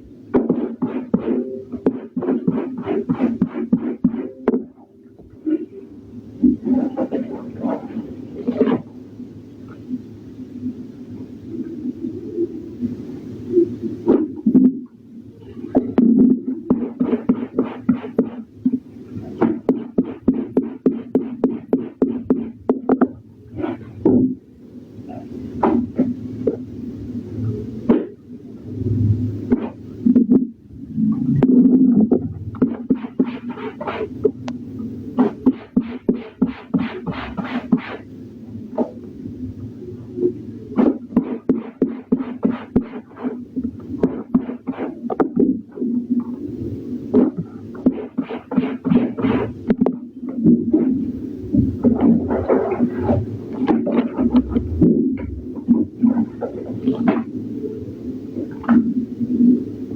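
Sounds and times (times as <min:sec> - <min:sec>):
scrubbing wet fabric by hand: 0:00.4 - 0:04.4, 0:35.2 - 0:38.1, 0:40.8 - 0:43.4.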